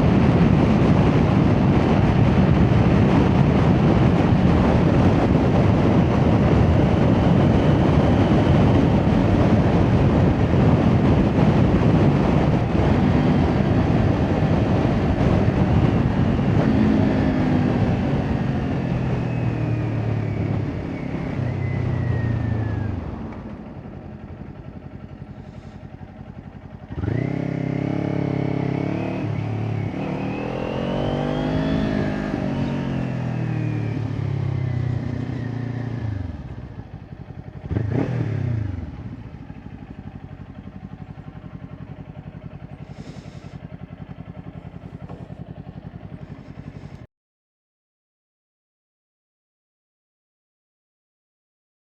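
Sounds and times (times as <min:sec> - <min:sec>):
wind noise: 0:00.0 - 0:24.0
motorcycle engine revving: 0:00.0 - 0:47.1.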